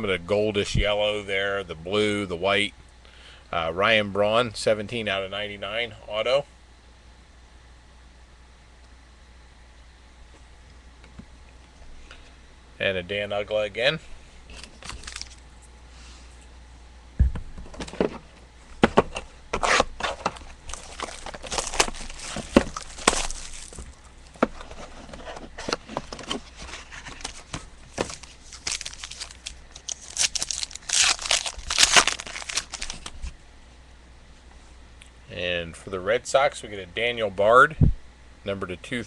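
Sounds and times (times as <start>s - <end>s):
cards being handled: 14.5s - 15.4s, 18.9s - 33.3s
foil wrappers tearing and crinkling: 14.5s - 15.4s, 19.6s - 24.9s, 25.8s - 33.3s.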